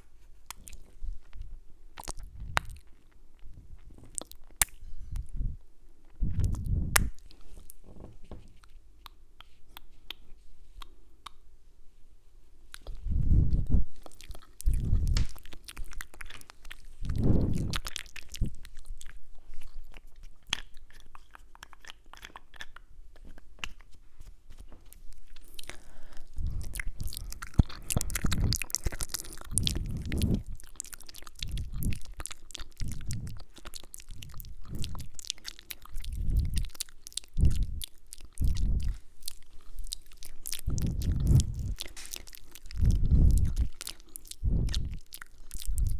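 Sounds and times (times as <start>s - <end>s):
wet mouth clicks and kisses: 2.0s - 3.0s, 6.3s - 7.8s, 12.7s - 18.7s, 25.3s - 45.9s
soft thumps against microphone: 7.8s - 8.6s.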